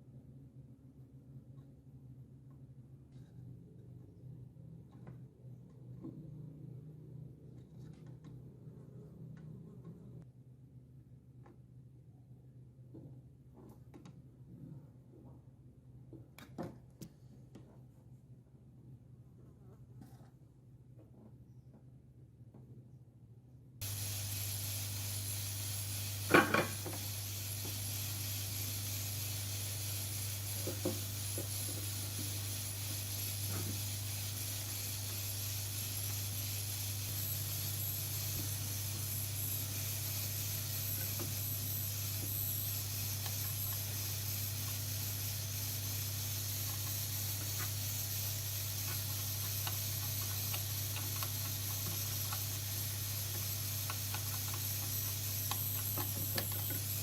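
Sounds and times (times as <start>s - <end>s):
low electrical hum: 0.0s - 57.0s
background hiss: 23.8s - 57.0s.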